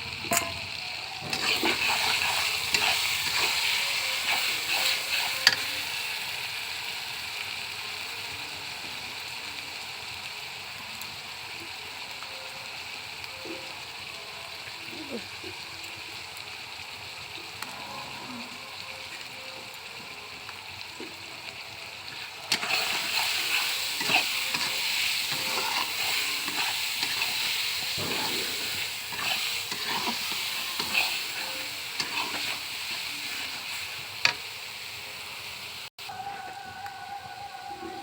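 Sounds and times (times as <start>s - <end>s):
food sizzling in a pan: 0.0s - 38.0s
stirring clicks and scrapes: 0.2s - 5.7s, 22.1s - 34.4s.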